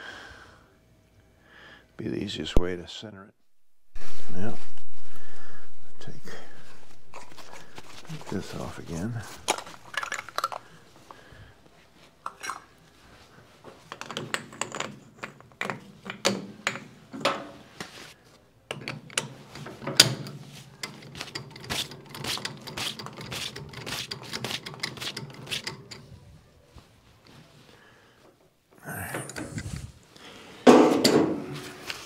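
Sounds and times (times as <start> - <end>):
steady low hum: 3.4 - 11.9
metal tools clicking and clinking: 7.1 - 10.8, 20.8 - 26.1.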